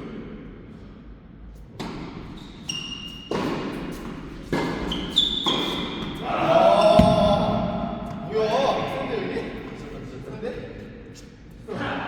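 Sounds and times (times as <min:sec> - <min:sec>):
shoe squeaks: 0:02.3 - 0:06.2.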